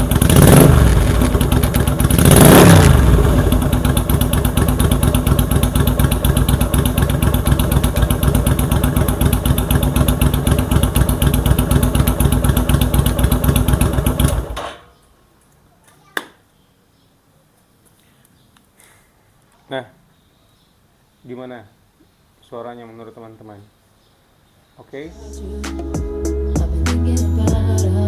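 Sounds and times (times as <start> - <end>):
motorcycle engine idling: 0.0 - 14.6.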